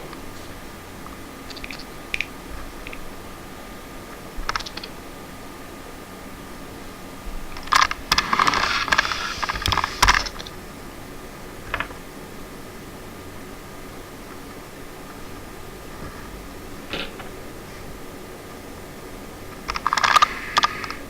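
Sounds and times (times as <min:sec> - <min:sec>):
rapid clicking and rattling: 0:01.4 - 0:03.2, 0:04.4 - 0:05.0, 0:07.5 - 0:10.6, 0:19.6 - 0:21.0
sharp clicks: 0:01.5 - 0:03.0, 0:04.5 - 0:05.0, 0:19.6 - 0:21.0.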